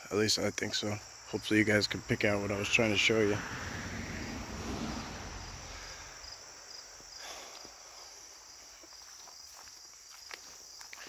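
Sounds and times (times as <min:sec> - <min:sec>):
crickets chirring: 0:00.0 - 0:11.0
rushing noise: 0:01.2 - 0:06.5.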